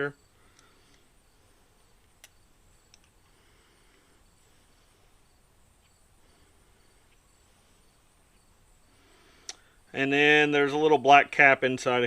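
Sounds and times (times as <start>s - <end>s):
soft clicks: 2.0s - 3.2s.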